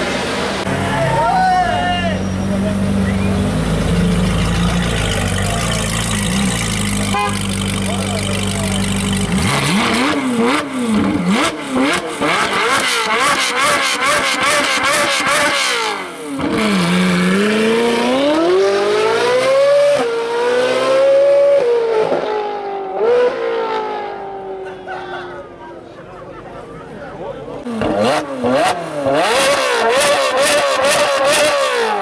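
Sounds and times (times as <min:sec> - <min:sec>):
car engine revving: 0:02.2 - 0:24.5, 0:27.6 - 0:32.0
exhaust crackling and popping: 0:03.5 - 0:11.2.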